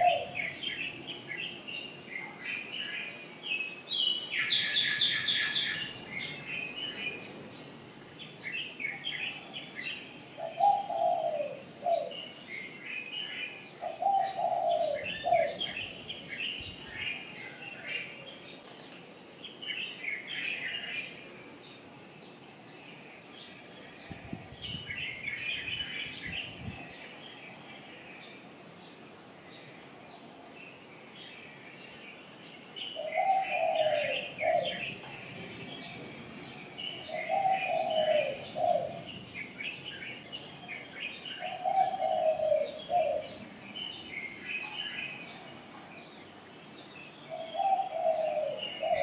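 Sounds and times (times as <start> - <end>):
lower bird call: 0.0 - 7.6, 32.2 - 45.5, 47.0 - 49.0
small birds chirping: 0.0 - 49.0.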